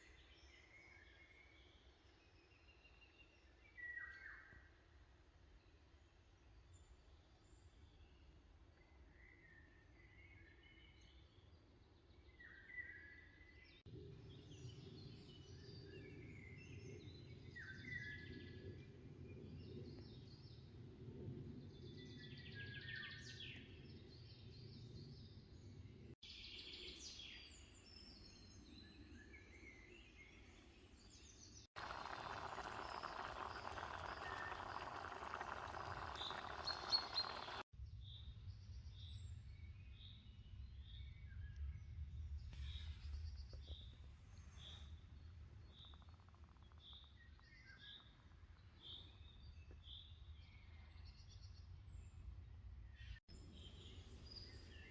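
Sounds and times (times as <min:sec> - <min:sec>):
birds chirping and whistling: 0:31.9 - 0:37.6.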